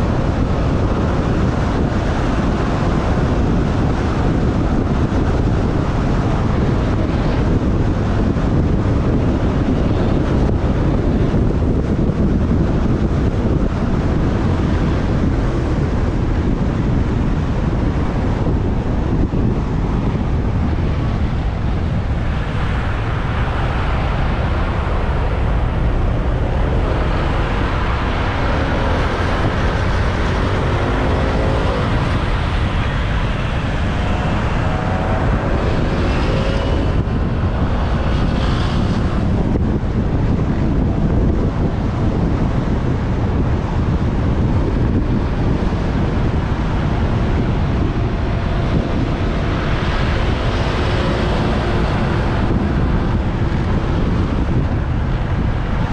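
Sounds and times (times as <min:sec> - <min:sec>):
traffic noise: 0:00.0 - 0:55.9
wind buffeting microphone: 0:00.0 - 0:55.9.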